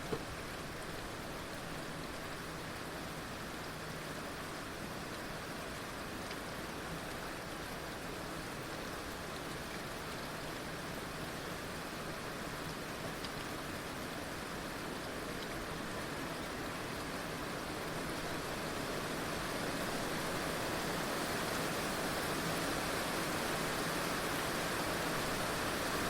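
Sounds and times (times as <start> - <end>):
heavy rain falling: 0.0 - 26.0
raindrop ticks: 13.2 - 13.5, 15.4 - 15.6.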